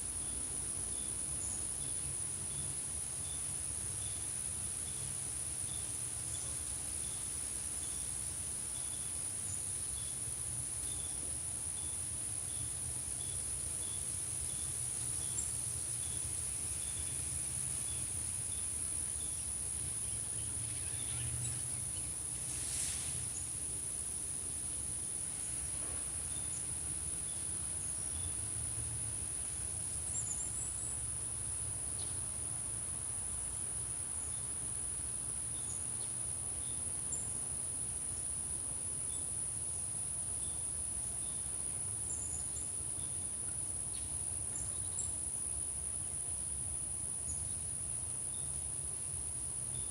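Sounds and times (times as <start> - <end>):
insects trilling: 0.0 - 49.9.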